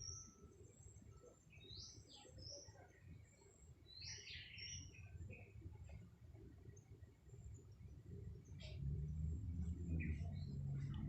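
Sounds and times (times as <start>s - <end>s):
birds chirping: 7.6s - 11.0s
faint low rumble: 7.6s - 11.0s.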